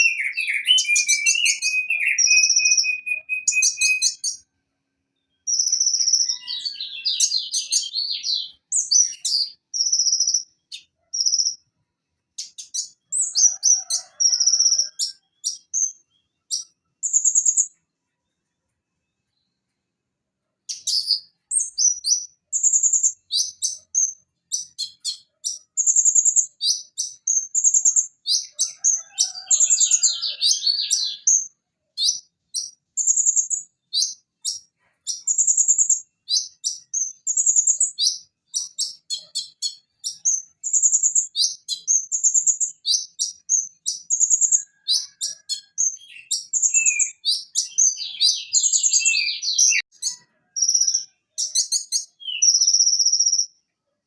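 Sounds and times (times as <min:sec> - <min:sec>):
sunbird singing chirps and trills: 0:00.0 - 0:04.5, 0:05.2 - 0:11.7, 0:12.4 - 0:17.8, 0:20.7 - 0:53.6.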